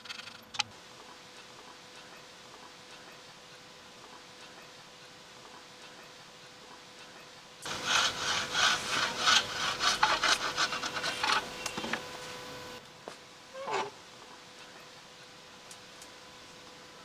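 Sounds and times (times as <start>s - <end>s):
hand saw cutting wood: 7.7s - 12.8s
short scrape: 7.7s - 12.8s.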